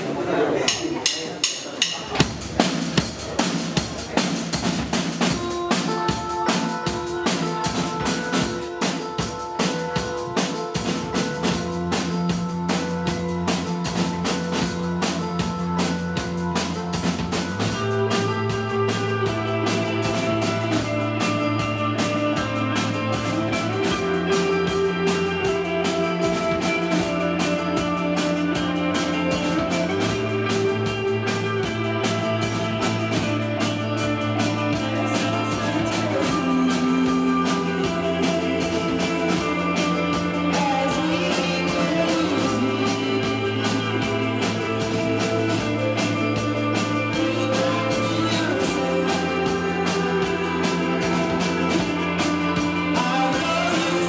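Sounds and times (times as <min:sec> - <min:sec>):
bass guitar: 0:00.0 - 0:54.0
drum kit: 0:00.0 - 0:54.0
electric guitars: 0:02.1 - 0:54.0
person singing: 0:17.5 - 0:54.0.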